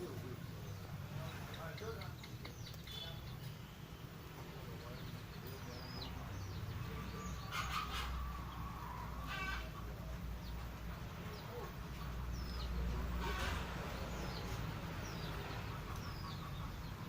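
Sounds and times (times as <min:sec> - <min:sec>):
harsh hen-like clucks: 0:07.4 - 0:10.1.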